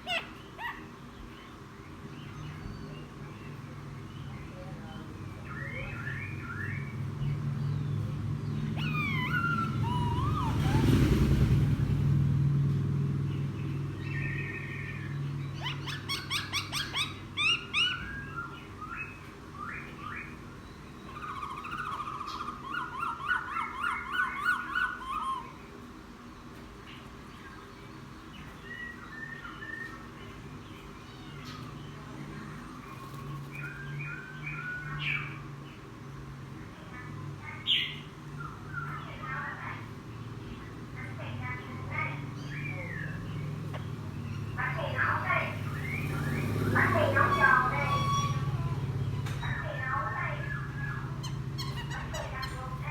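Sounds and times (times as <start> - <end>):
bird singing whistles and trills: 5.5 - 7.0, 8.7 - 11.0, 14.0 - 25.6, 28.4 - 30.3, 33.2 - 35.4, 44.3 - 52.9.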